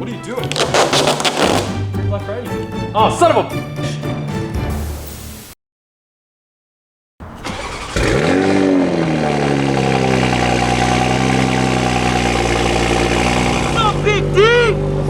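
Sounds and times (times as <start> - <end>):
car engine starting and idling: 7.2 - 15.0.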